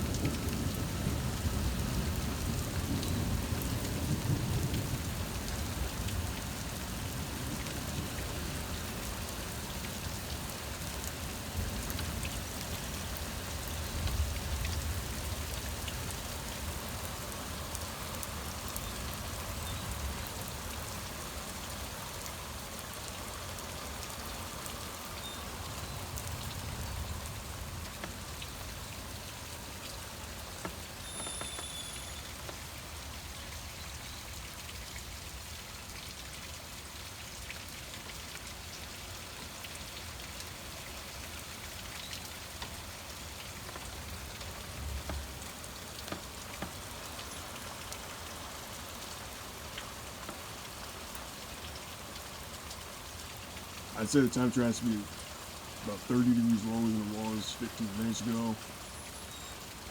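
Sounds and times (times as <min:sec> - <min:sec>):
heavy rain falling: 0:00.0 - 0:59.9
raindrops ticking close by: 0:00.0 - 0:59.9.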